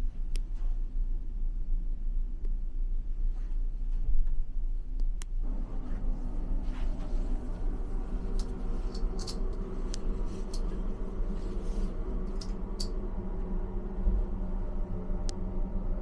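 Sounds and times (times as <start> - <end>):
machinery hum: 5.4 - 16.0
light clicks and ticks: 6.3 - 13.2.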